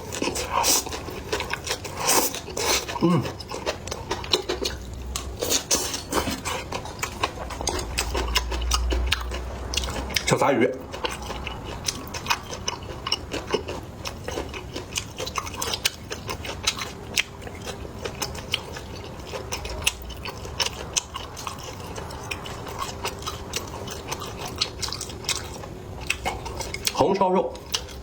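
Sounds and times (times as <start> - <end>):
chewing and crunching fish: 0.0 - 28.0.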